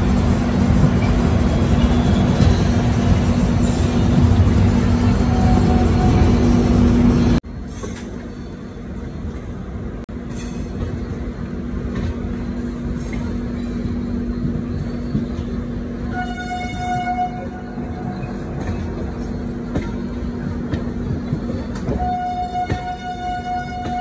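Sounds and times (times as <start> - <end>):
train wheels rumbling on rails: 0.0 - 24.0
train horn: 5.2 - 6.5, 16.0 - 18.3, 21.9 - 24.0.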